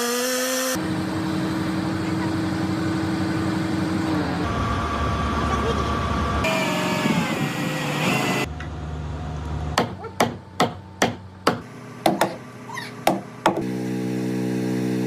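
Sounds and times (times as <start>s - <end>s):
hammer striking: 9.8s - 12.4s, 13.0s - 13.7s.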